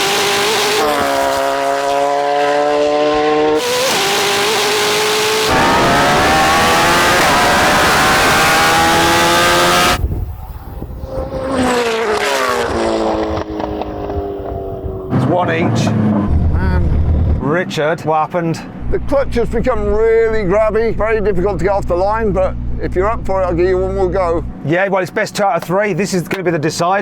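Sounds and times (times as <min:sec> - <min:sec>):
engines revving at full throttle: 0:00.0 - 0:10.0, 0:11.0 - 0:18.0.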